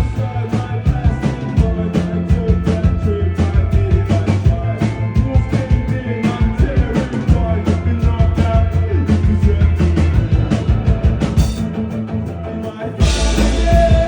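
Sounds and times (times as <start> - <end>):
drums keeping a beat: 0.0 - 12.4, 13.0 - 14.0
live rock band playing: 0.0 - 14.0
person singing: 12.4 - 14.0.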